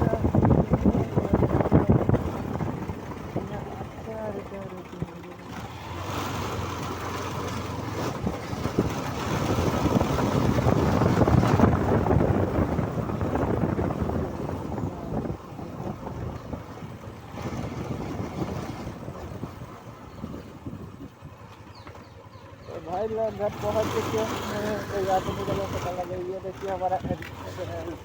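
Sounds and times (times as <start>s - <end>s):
wind rushing over microphone: 0.0s - 4.7s, 5.6s - 21.8s
motorcycle riding: 0.0s - 28.0s.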